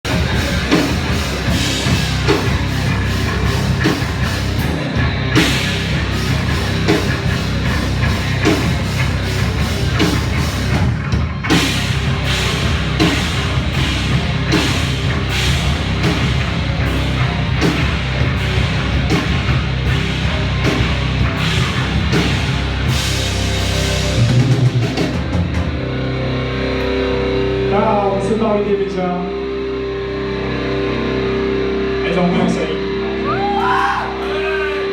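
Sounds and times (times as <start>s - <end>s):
drum kit beat: 0.0s - 26.0s
bass guitar: 0.0s - 34.9s
distorted guitar: 0.0s - 34.9s.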